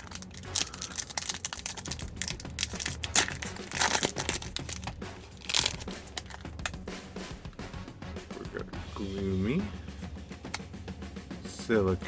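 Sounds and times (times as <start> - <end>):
plastic foil wrapper crinkling: 0.0 - 6.8.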